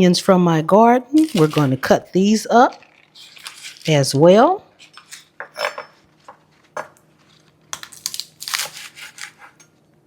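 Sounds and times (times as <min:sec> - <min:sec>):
knife cutting green onions: 0:07.9 - 0:09.6.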